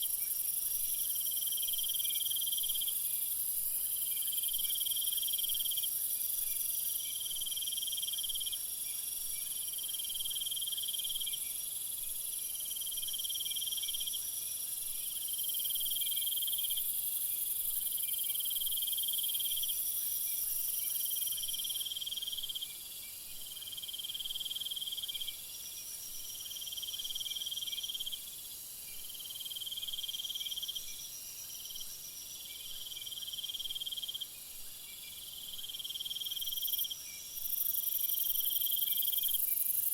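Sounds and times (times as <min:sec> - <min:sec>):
constant high hiss: 0:00.0 - 0:39.9
high-pitched insect trill: 0:00.0 - 0:39.9
insects trilling: 0:23.6 - 0:39.9.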